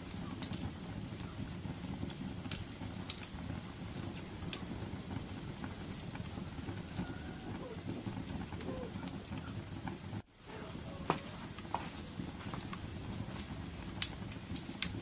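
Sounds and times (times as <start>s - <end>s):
fire crackles and pops: 0.0s - 15.0s
wood fire low rumble: 0.0s - 15.0s.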